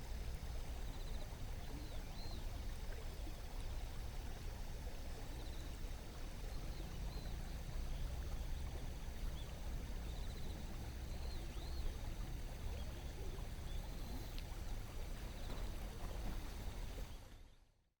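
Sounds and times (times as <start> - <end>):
river water flowing over stones: 0.0 - 17.3
faint bird chirps: 6.4 - 14.5.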